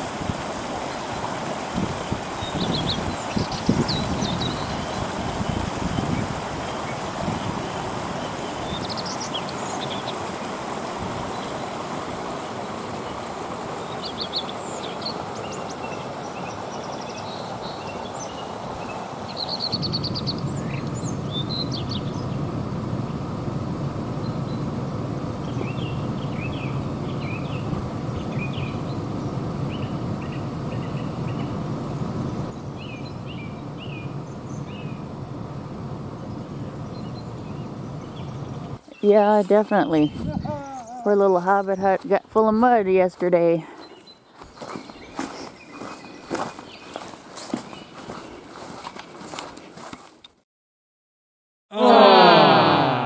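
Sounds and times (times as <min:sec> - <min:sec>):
water rushing over waterfall: 0:00.0 - 0:22.6
songbirds chirping and trilling: 0:00.8 - 0:49.0.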